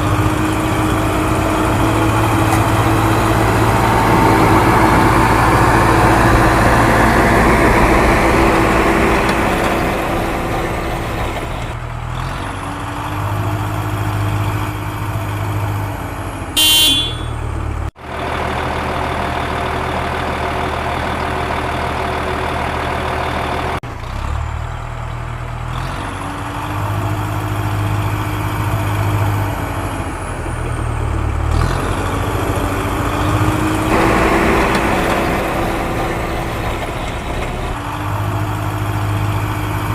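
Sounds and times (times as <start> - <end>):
heavy diesel machinery running: 0.0 - 39.9
horn blast: 16.6 - 17.4, 33.9 - 37.8.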